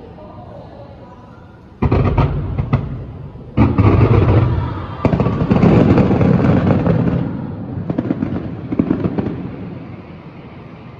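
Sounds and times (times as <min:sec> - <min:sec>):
fireworks booms and crackles: 0:01.8 - 0:10.2.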